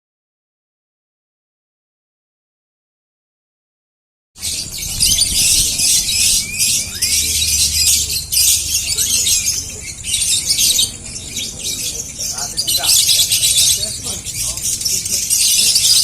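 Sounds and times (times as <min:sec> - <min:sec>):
lovebirds chattering shrilly: 0:04.4 - 0:16.0.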